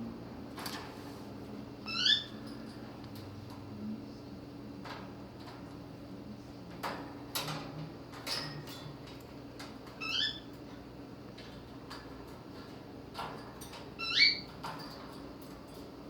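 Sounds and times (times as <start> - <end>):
cockatiel chirp: 1.9 - 2.4, 10.0 - 10.4.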